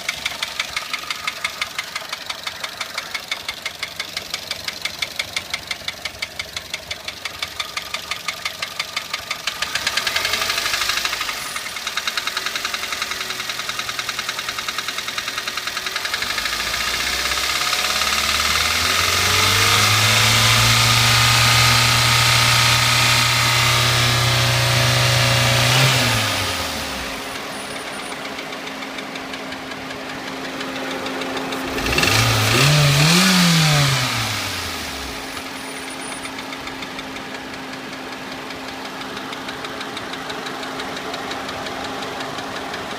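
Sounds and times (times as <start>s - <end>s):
car engine knocking at idle: 0.0s - 42.9s
engine revving: 9.4s - 37.5s.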